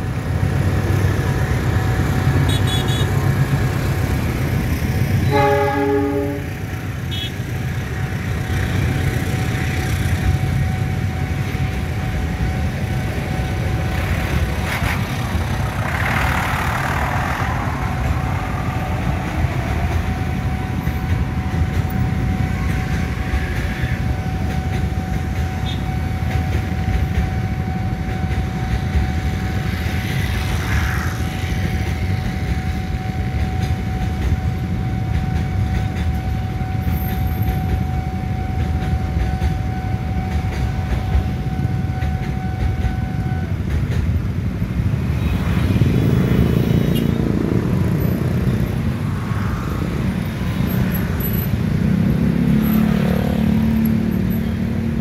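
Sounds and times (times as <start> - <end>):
freight train rumbling: 0.0 - 55.0
train horn: 5.2 - 7.4, 25.0 - 27.8, 36.2 - 43.6.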